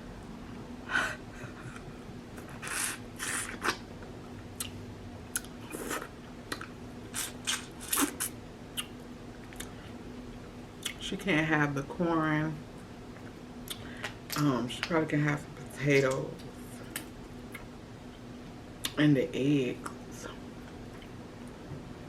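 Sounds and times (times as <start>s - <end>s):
faint hum: 0.0s - 22.0s
chewing with wet mouth noises: 4.6s - 9.8s.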